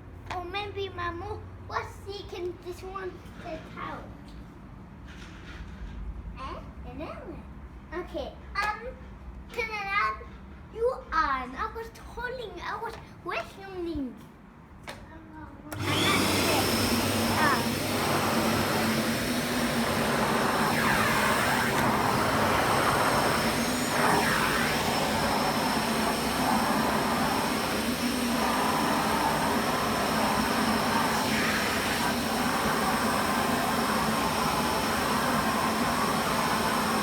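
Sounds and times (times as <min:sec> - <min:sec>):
vacuum cleaner running: 0:15.7 - 0:37.0.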